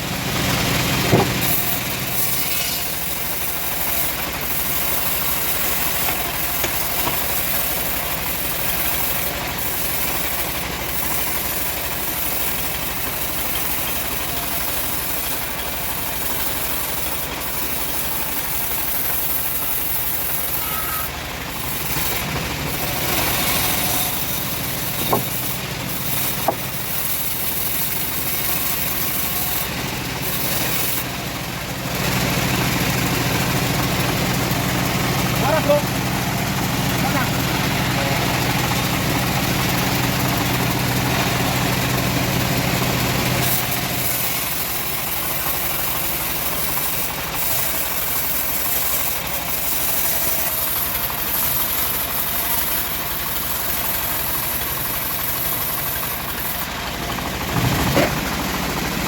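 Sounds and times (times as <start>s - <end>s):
bandsaw sawmill running: 0.0s - 59.0s
sharp knocks: 1.1s - 1.5s.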